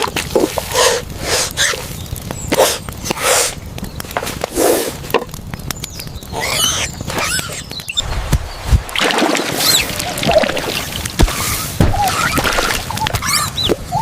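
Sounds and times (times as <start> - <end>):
monkeys squealing and chattering: 6.3 - 8.0, 9.6 - 14.0.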